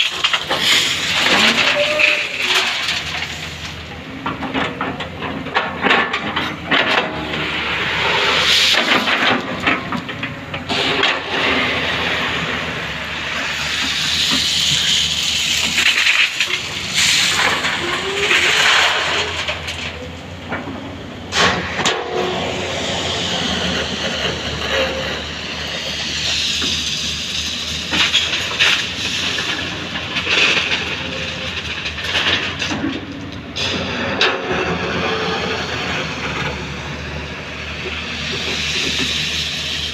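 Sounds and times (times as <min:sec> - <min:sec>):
diesel engine running: 0:00.0 - 0:39.9
loud hissing surges: 0:07.2 - 0:09.5, 0:10.7 - 0:19.8, 0:21.1 - 0:30.0, 0:34.7 - 0:39.9.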